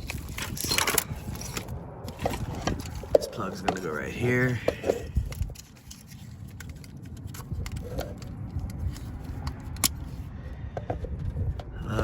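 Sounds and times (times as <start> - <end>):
connector clicks and handling: 0.0 - 3.9, 4.5 - 10.2
low background rumble: 0.0 - 12.0.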